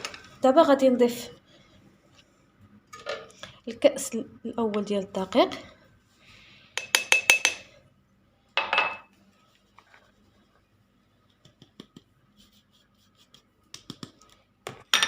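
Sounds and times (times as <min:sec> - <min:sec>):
faint clicks and taps: 0:11.3 - 0:12.1.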